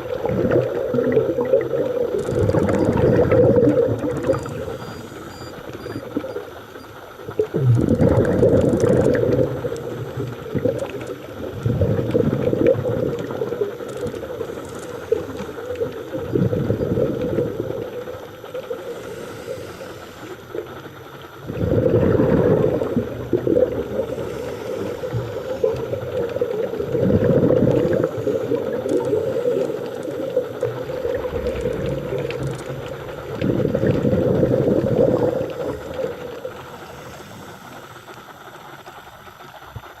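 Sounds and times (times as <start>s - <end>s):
exhaled bubbles rushing underwater: 0.0s - 40.0s
regulator hiss: 12.5s - 40.0s.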